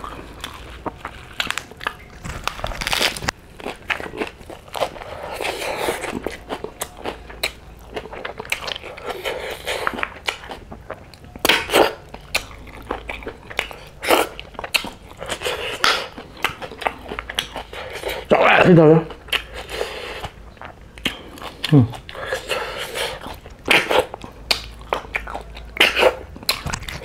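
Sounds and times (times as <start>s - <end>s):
crisp crunching chewing: 0.0s - 18.3s, 19.3s - 27.0s.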